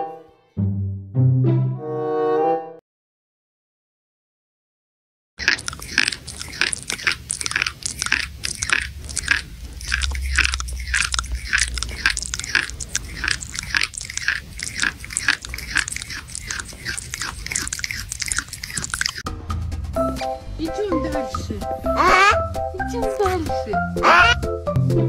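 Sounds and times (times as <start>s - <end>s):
crunchy chewing and biting: 5.4s - 19.3s, 23.0s - 24.4s.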